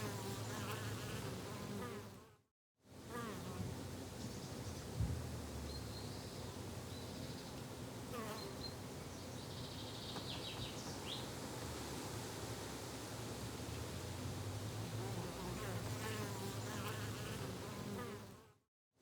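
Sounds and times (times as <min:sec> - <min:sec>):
thump: 0:05.0 - 0:05.3.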